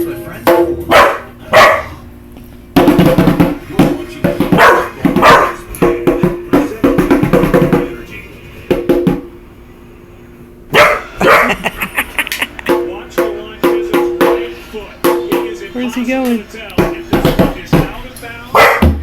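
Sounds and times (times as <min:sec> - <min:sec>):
djembe drum strikes: 0:00.4 - 0:01.0, 0:02.8 - 0:08.0, 0:08.7 - 0:09.4, 0:12.5 - 0:15.8, 0:16.8 - 0:18.0, 0:18.8 - 0:19.0.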